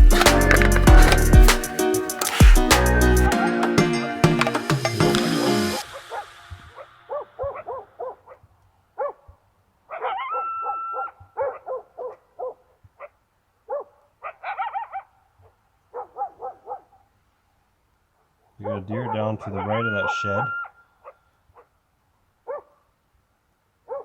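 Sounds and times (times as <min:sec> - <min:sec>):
dog barking and yipping: 0:05.8 - 0:17.0, 0:22.4 - 0:22.8.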